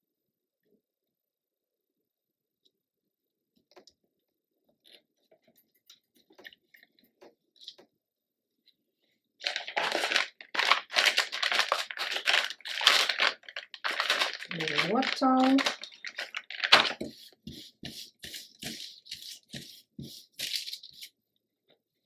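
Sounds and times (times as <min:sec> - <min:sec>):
crinkling and rustling: 0:09.4 - 0:21.2.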